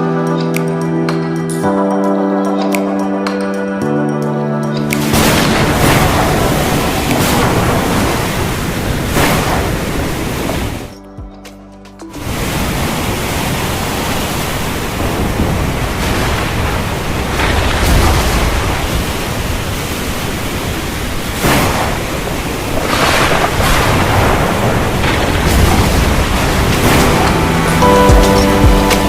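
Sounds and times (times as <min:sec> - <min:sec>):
heavy rain: 0:05.0 - 0:10.9, 0:12.2 - 0:29.0
thunder claps: 0:05.0 - 0:10.9, 0:14.6 - 0:19.8, 0:21.4 - 0:29.0
rolling thunder: 0:14.9 - 0:19.8, 0:21.4 - 0:28.1.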